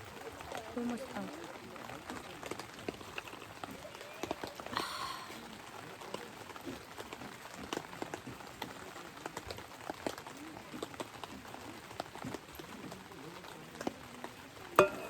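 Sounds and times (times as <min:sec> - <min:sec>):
raindrops ticking: 0:00.0 - 0:15.0
steady rain falling: 0:00.0 - 0:15.0.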